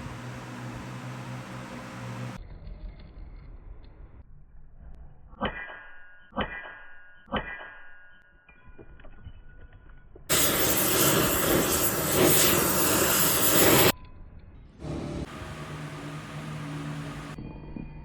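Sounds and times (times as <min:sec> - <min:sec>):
loud steady hiss: 0:10.3 - 0:13.9.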